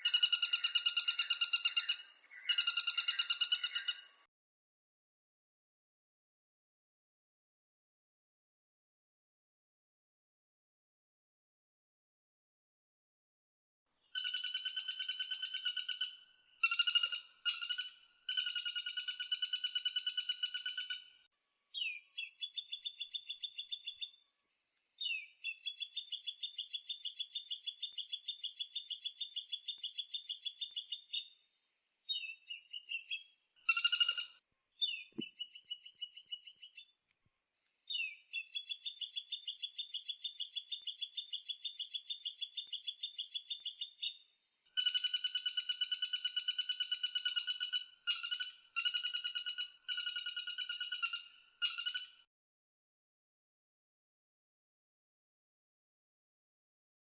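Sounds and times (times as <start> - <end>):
woodpecker rattling call: 0.0 - 4.2, 14.2 - 21.1, 32.2 - 36.9, 44.8 - 52.2.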